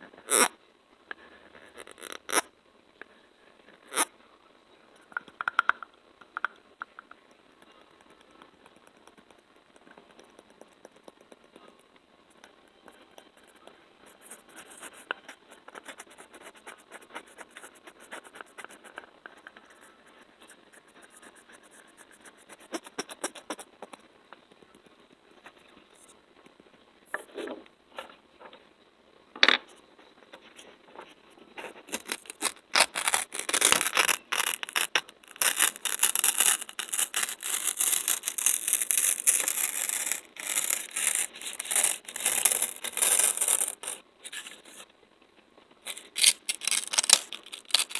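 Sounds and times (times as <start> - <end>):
rubbing and scratching: 1.4 - 2.5, 12.8 - 24.1, 30.2 - 44.9, 45.8 - 47.9
faint crackly ticking: 5.0 - 15.2.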